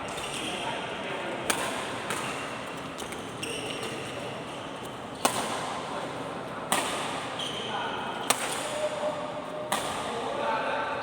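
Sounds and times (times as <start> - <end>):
rackets hitting shuttlecock: 9.7 - 10.1.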